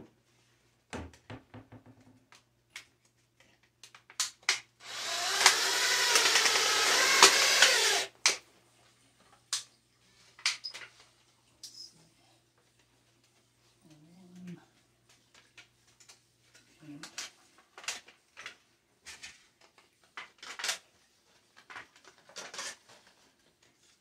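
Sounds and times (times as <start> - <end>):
power drill driving screw into tin: 4.8 - 8.4.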